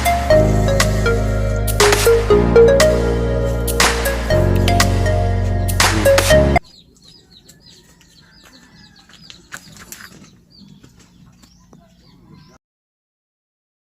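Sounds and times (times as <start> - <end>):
faint birds chirping: 5.6 - 12.6.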